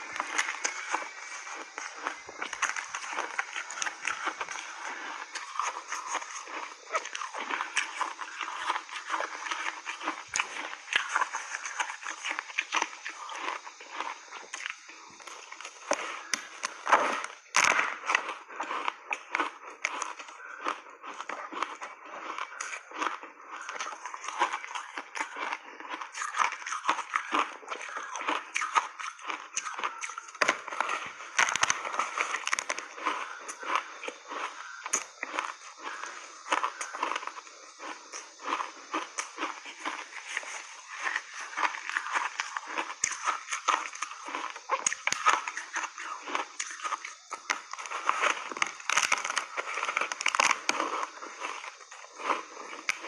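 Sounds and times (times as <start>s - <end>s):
ice crunching and chewing: 0.0s - 53.0s.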